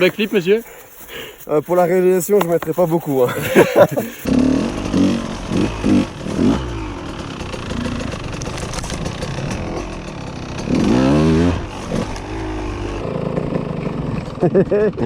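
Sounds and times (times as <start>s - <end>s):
two-stroke motorcycle engine revving: 4.1s - 15.0s.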